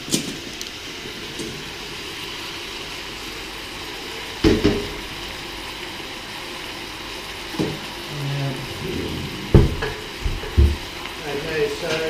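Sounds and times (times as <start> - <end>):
stir fry sizzling in a wok: 0.0 - 12.0
sharp knocks: 9.5 - 10.9.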